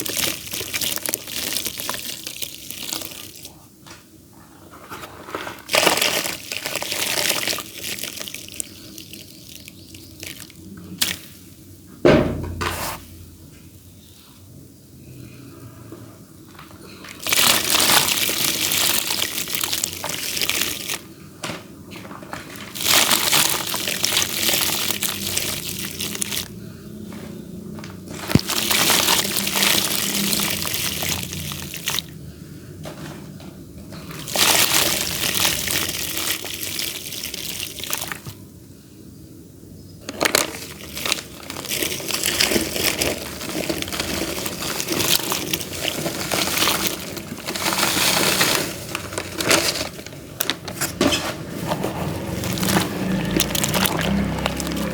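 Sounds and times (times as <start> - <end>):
clay dirt crumbling: 4.6 - 11.3, 16.7 - 21.1, 21.9 - 26.6, 27.8 - 32.1, 33.9 - 38.4, 40.0 - 54.9.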